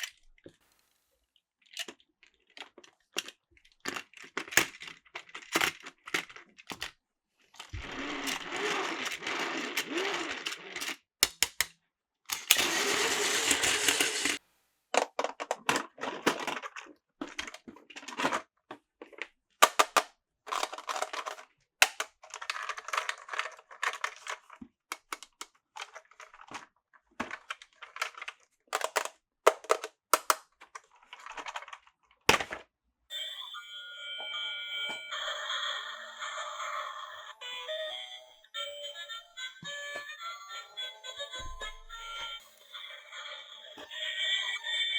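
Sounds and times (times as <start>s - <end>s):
plastic toy pieces clicking: 1.8s - 7.0s, 7.6s - 14.4s, 19.6s - 26.6s, 27.2s - 31.8s.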